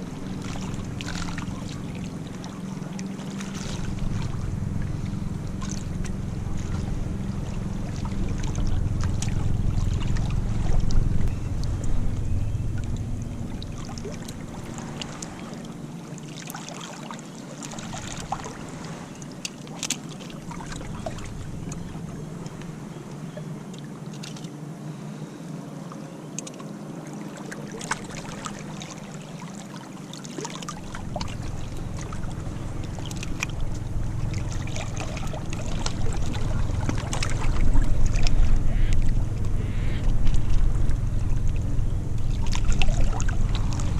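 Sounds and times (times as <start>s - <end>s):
surf washing on beach: 0.0s - 26.0s, 26.6s - 43.9s
wind buffeting microphone: 3.5s - 15.4s, 31.0s - 43.9s
small clicks and ticks: 26.4s - 26.7s.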